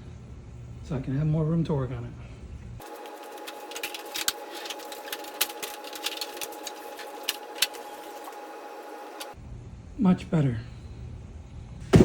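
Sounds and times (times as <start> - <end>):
steady whine: 2.8 - 9.4.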